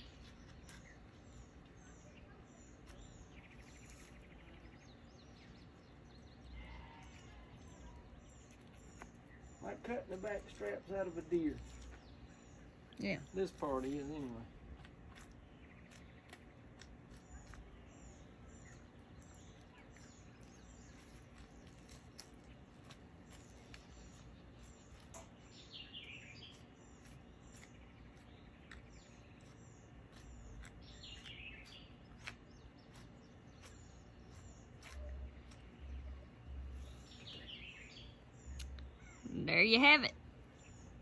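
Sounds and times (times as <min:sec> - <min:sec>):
low steady hum: 0:00.0 - 0:41.0
high bird chirps: 0:23.3 - 0:41.0.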